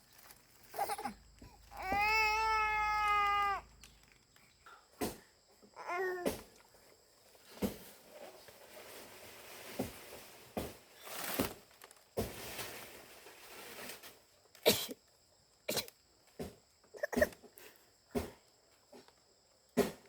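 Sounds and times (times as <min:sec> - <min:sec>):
rustling hiss: 0:06.4 - 0:14.9.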